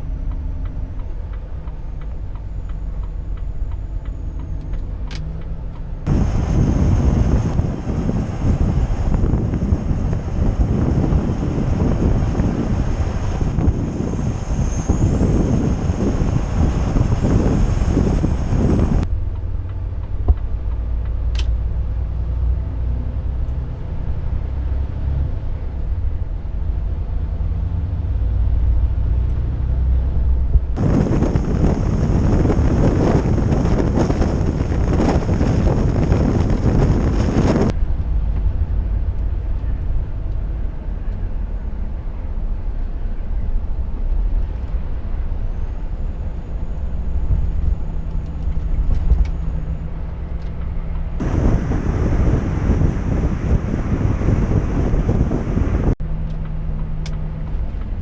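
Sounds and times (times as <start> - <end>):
truck engine and road drone: 0.0 - 58.0
loud rushing noise: 6.1 - 19.1, 30.8 - 38.1, 51.2 - 56.0.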